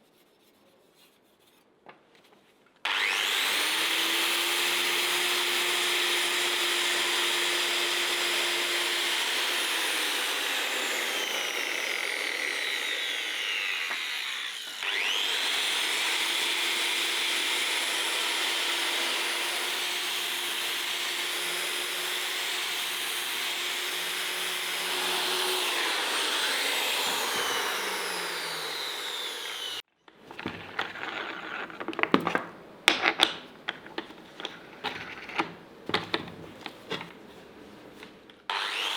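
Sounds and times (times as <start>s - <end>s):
electric power tool running: 2.9s - 29.8s, 38.5s - 38.9s.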